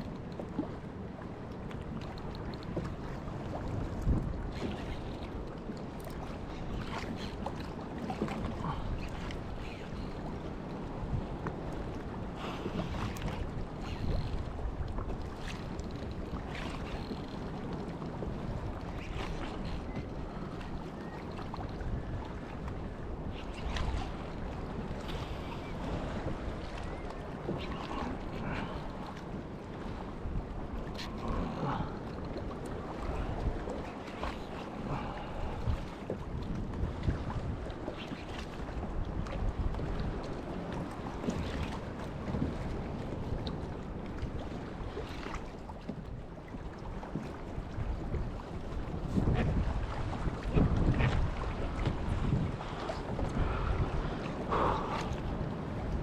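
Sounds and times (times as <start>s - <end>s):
water lapping against a hull: 0.0s - 56.0s
wind buffeting the microphone: 0.0s - 56.0s
wind buffeting microphone: 47.0s - 56.0s.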